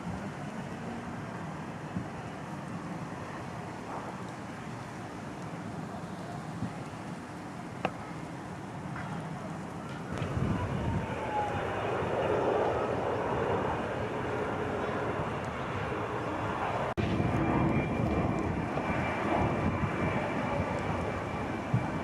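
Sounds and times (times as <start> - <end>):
airliner engine flying overhead: 0.0 - 22.0.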